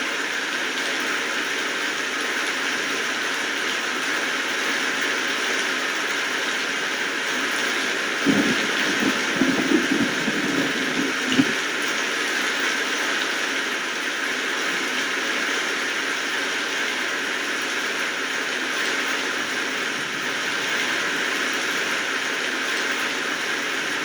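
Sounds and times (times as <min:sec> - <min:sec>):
steady rain falling: 0:00.0 - 0:24.0
heavy low knocks: 0:08.3 - 0:11.5.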